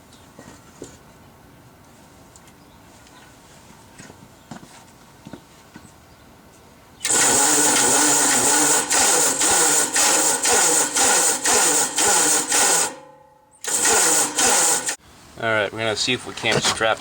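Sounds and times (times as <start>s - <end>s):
electric starter cranking engine: 7.0s - 13.0s, 13.6s - 15.0s.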